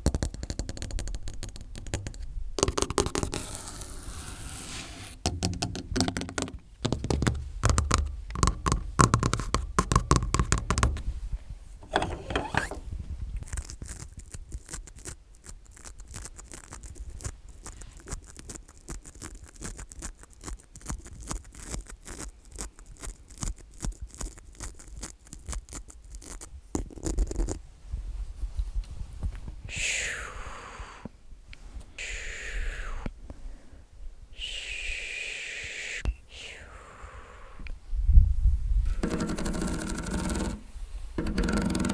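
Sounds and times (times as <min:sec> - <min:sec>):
fingernails tapping and clicking: 0:00.0 - 0:03.7, 0:05.2 - 0:12.8, 0:38.9 - 0:41.9
microphone handling rumble: 0:05.2 - 0:13.5.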